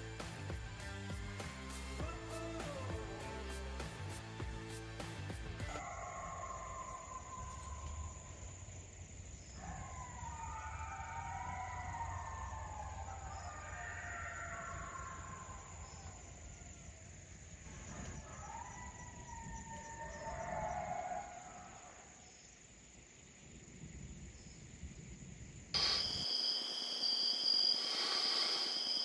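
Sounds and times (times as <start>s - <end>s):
distant wavering howls: 5.8s - 22.0s
high insect drone: 21.8s - 29.0s.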